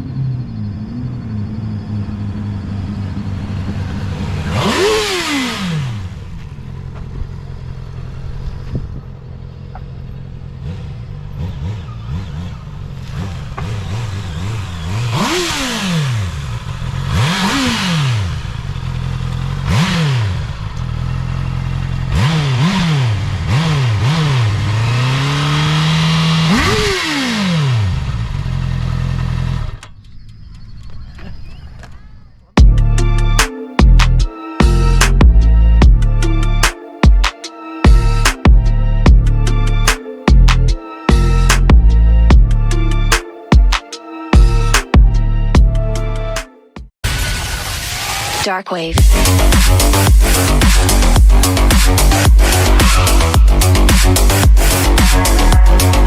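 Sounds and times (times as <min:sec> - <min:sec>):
motorcycle engine revving: 0:00.0 - 0:30.2, 0:32.3 - 0:37.2, 0:47.4 - 0:56.0.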